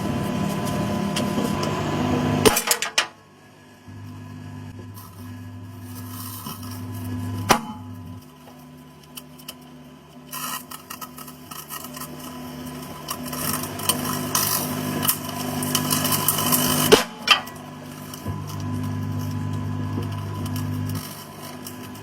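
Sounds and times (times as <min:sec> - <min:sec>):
microwave oven humming: 0:00.0 - 0:22.0
food crackling and popping: 0:04.7 - 0:22.0.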